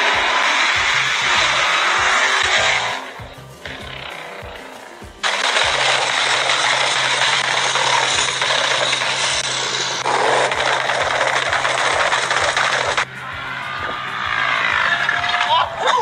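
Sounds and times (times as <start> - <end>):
car engine revving: 0.0 - 15.6.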